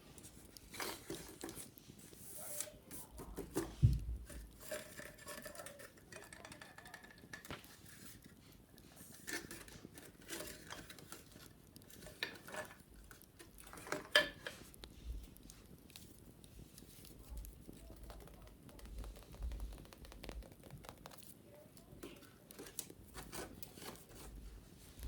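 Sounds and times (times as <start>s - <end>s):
wicker baskets being handled: 9.0s - 25.0s.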